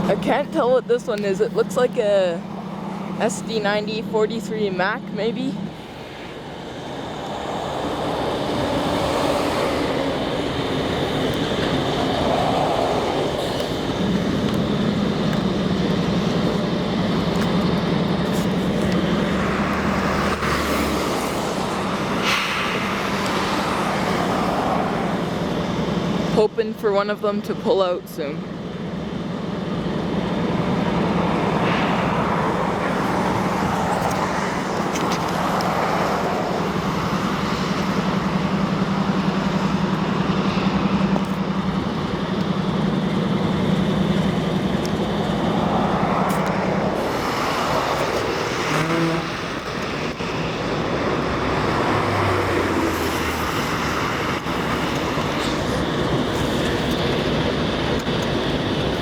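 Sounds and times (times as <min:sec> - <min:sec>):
road traffic: 0:00.0 - 0:59.0
vehicles passing: 0:00.0 - 0:59.0.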